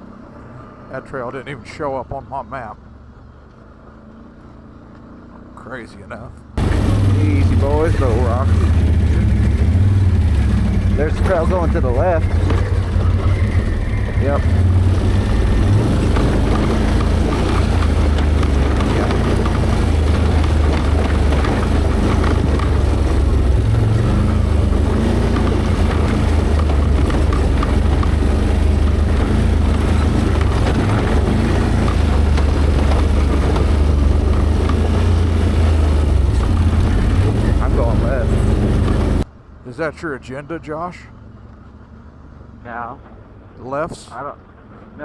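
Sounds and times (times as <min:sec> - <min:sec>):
atv engine running: 0:06.5 - 0:39.6.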